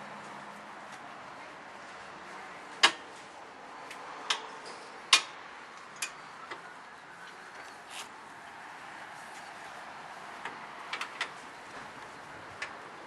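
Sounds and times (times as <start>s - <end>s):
mower parts clicking and knocking: 10.4s - 12.8s.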